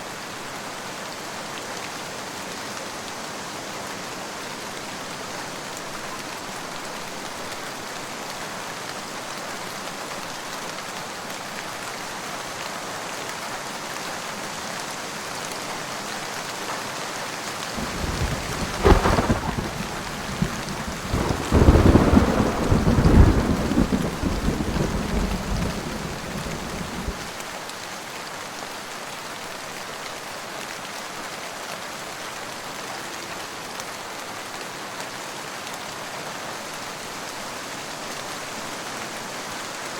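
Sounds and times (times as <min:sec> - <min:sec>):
steady rain: 0:00.0 - 0:39.9
thunder crack and rumble: 0:17.8 - 0:27.4.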